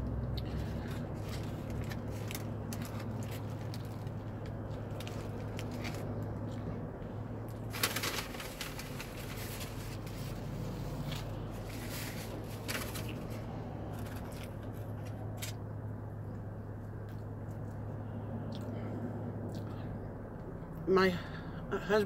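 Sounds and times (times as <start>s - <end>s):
low car cabin hum: 0.0s - 22.0s
paper napkin and wrapper crackling: 7.6s - 13.4s
person chewing food: 19.4s - 19.8s.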